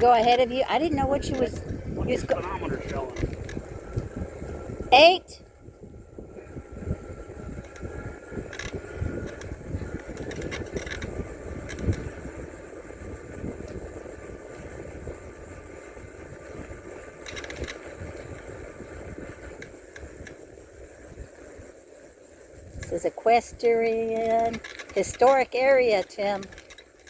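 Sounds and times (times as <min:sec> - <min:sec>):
tyres and wind rumbling: 0:00.0 - 0:27.0
bicycle clicks and rattles: 0:03.2 - 0:04.7, 0:06.8 - 0:22.9, 0:23.8 - 0:27.0.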